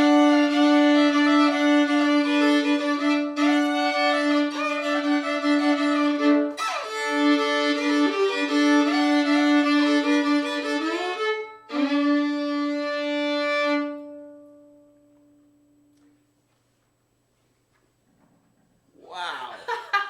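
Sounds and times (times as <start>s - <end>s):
fiddle playing double stops: 0.0s - 15.0s
low fiddle drone note: 0.0s - 15.8s.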